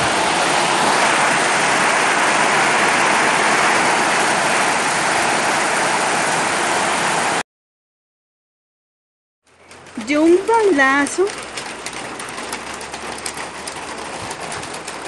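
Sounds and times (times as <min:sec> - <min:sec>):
strong wind: 0:00.0 - 0:07.4
torrential rain: 0:00.0 - 0:07.4, 0:09.5 - 0:15.0.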